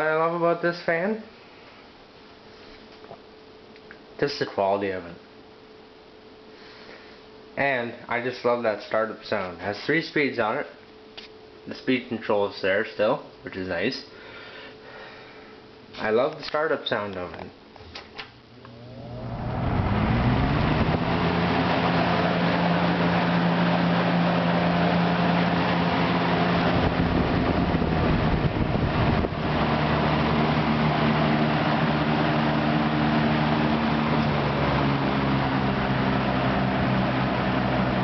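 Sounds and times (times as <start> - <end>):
box fan motor hum: 17.8 - 38.0
rush of moving air: 18.7 - 23.6.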